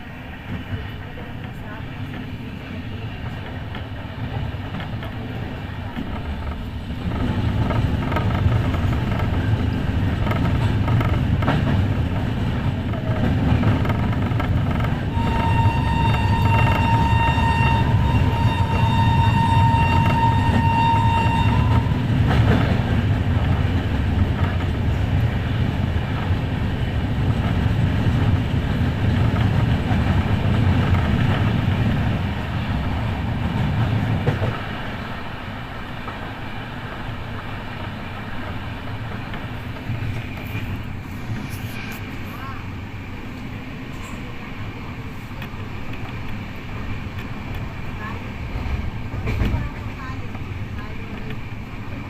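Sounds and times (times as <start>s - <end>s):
train running: 0.0s - 52.0s
high held tone: 15.2s - 22.0s.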